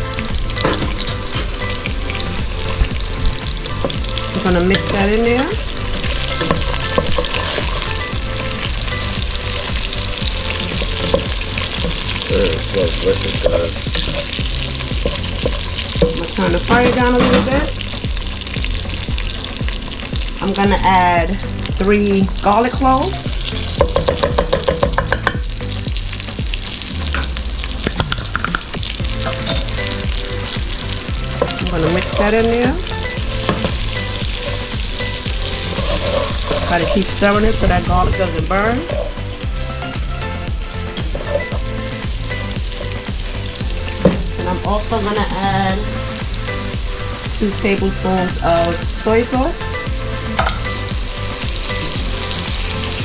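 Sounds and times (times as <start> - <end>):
wings sizzling in oil: 0.0 - 53.0
utensil scraping and knocking pot: 0.6 - 17.7, 23.8 - 25.4, 28.0 - 30.1, 31.2 - 39.4, 41.0 - 41.8.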